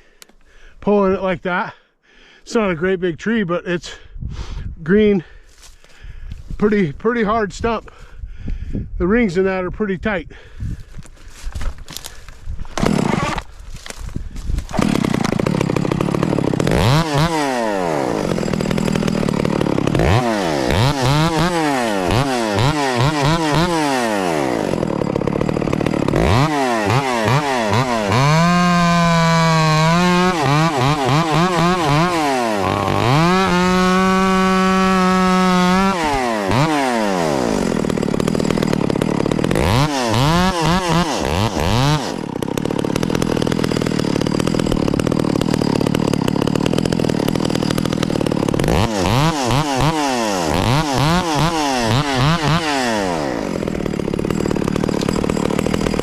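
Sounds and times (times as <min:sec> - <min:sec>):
chainsaw sawing through wood: 0:05.2 - 0:06.8, 0:10.4 - 0:56.0
chainsaw revving: 0:11.3 - 0:56.0.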